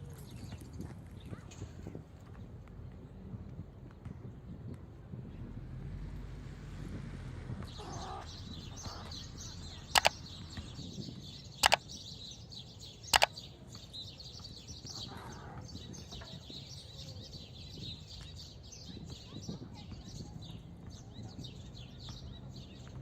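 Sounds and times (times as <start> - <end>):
small birds chirping: 7.4 - 23.0
sharp double clicks: 9.9 - 10.7, 11.6 - 11.8.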